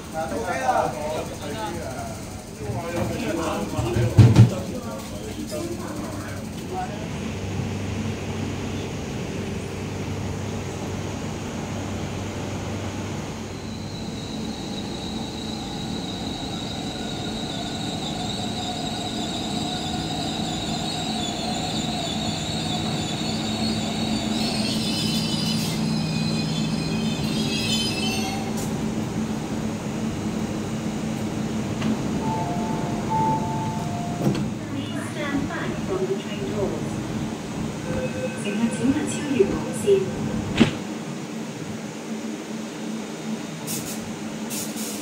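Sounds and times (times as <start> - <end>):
electric train braking: 13.5 - 28.8
wheels squealing: 13.6 - 28.7.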